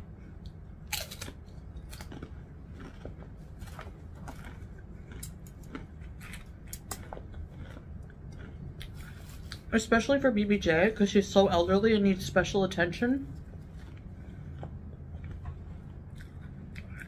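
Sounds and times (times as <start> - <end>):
person chewing crunchy chip: 0.3 - 9.7, 13.6 - 17.0.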